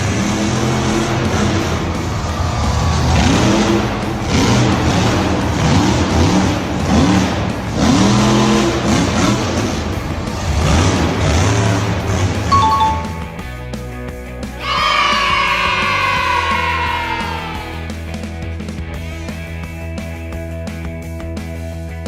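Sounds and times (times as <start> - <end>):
vehicle engine revving: 0.0 - 12.5
background music: 0.0 - 20.7.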